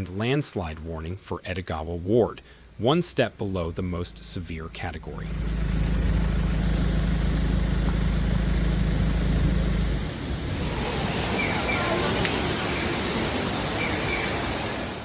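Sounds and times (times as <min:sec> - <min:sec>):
loud low rumble: 0:03.4 - 0:11.6
torrential rain: 0:07.8 - 0:15.0
rushing floodwater: 0:10.5 - 0:15.0
faint voices: 0:10.6 - 0:14.6.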